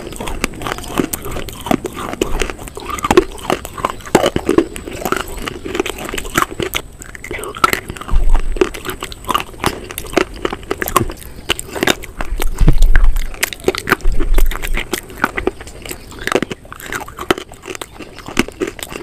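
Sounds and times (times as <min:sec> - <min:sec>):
crunching and chewing: 0:00.0 - 0:19.0
wet mouth sounds: 0:00.0 - 0:19.0
low thuds: 0:12.3 - 0:13.3.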